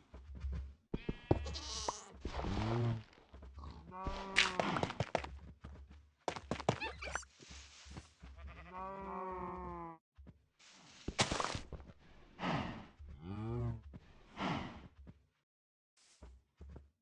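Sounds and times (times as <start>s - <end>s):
livestock bleating: 8.4s - 10.0s.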